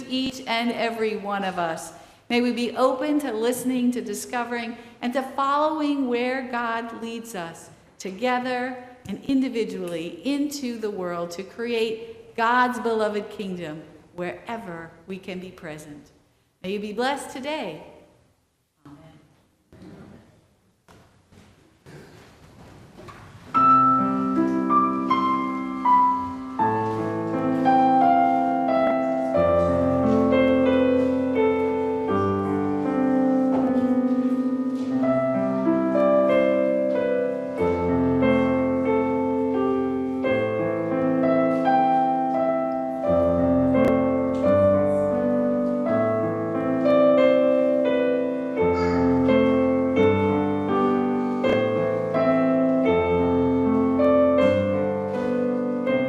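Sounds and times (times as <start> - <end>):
piano playing slow chords: 23.6 - 56.0.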